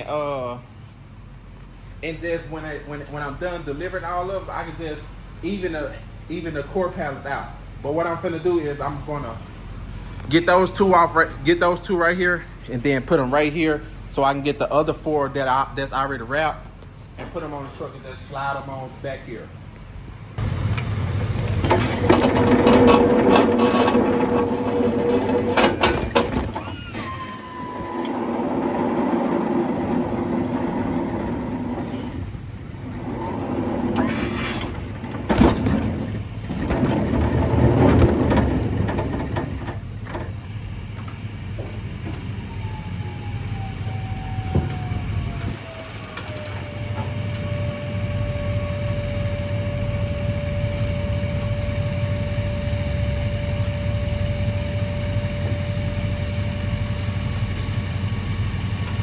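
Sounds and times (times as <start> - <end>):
low engine hum: 19.4 - 59.0
whining tone: 20.4 - 59.0
pallets knocking and clattering: 21.3 - 27.1.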